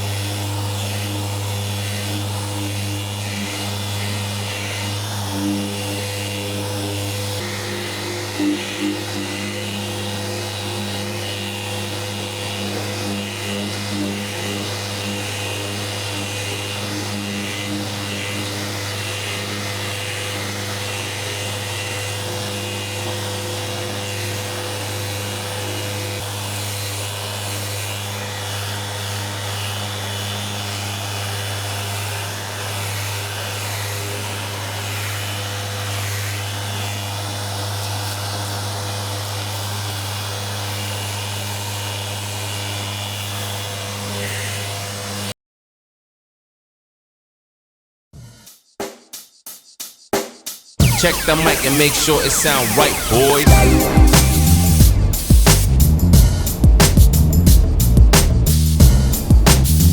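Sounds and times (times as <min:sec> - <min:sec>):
electric sander running: 0:00.0 - 0:45.3.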